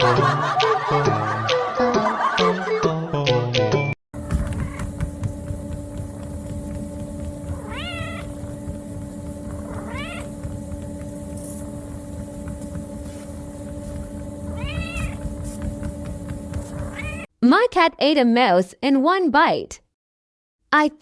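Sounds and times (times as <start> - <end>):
steady low hum: 4.2 - 17.3
cat meowing: 7.5 - 8.4, 9.6 - 10.3, 14.5 - 15.2, 16.9 - 17.3.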